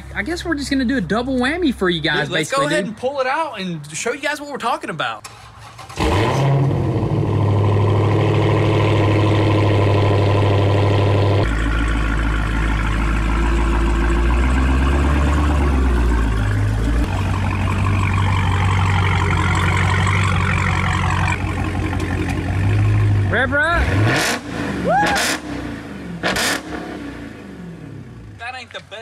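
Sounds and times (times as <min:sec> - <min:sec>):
car engine idling deeply: 0:06.0 - 0:28.5.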